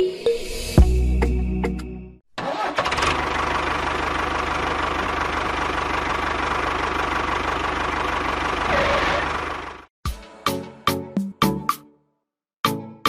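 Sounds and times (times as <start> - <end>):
small engine idling: 2.4 - 9.9.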